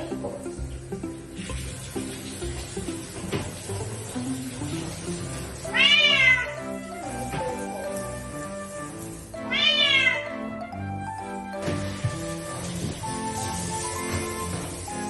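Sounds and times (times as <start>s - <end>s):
kitten meowing loudly: 5.7s - 6.6s, 9.5s - 10.3s.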